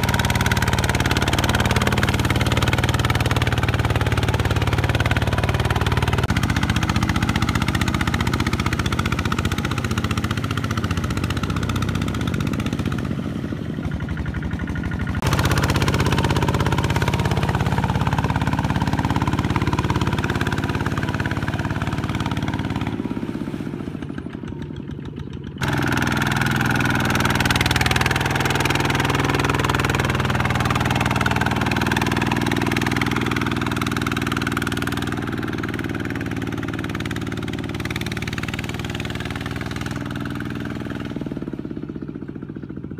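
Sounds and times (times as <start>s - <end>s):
tractor engine running under load: 0.0s - 42.9s.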